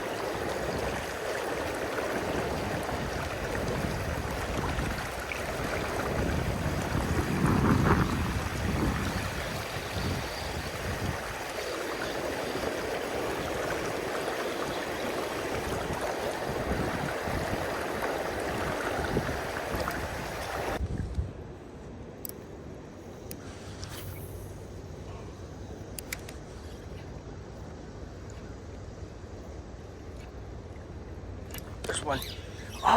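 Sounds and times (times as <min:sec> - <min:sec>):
river water rushing: 0:00.0 - 0:07.5, 0:08.2 - 0:20.8
faint clicks: 0:25.9 - 0:27.1.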